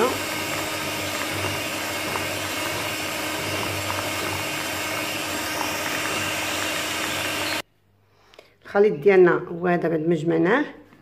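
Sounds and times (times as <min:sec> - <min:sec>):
electric mixer running: 0:00.0 - 0:07.6.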